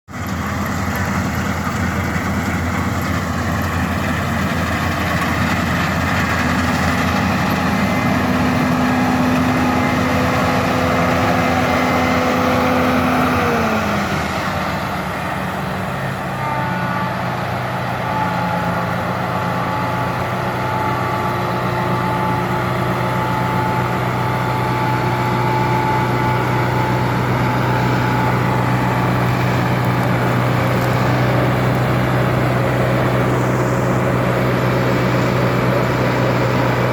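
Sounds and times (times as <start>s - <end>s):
combine engine and machinery hum: 0.1s - 36.9s.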